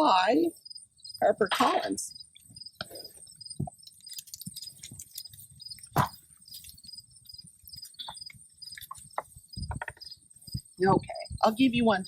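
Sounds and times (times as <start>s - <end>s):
crickets chirping: 0.0s - 12.0s
high insect trill: 0.4s - 12.0s
small knocks: 7.7s - 10.7s.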